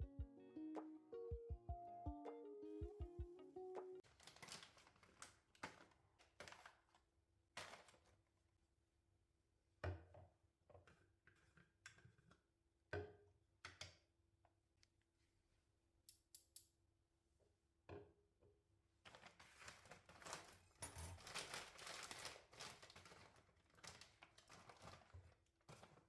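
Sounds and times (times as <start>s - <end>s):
plucked guitar music: 0.0s - 4.0s
soft handling rustles: 4.1s - 7.0s, 19.1s - 26.0s.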